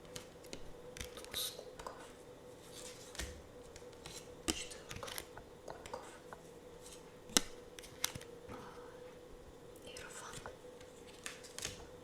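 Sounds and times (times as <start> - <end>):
cards tapping and clicking: 0.0 - 2.0, 2.8 - 8.3, 9.9 - 12.0
faint steady hum: 0.0 - 12.0.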